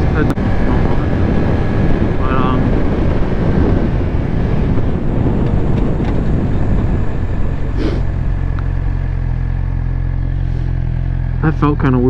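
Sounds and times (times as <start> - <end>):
wind rush: 0.0 - 11.0
motorcycle engine idling: 5.0 - 12.0.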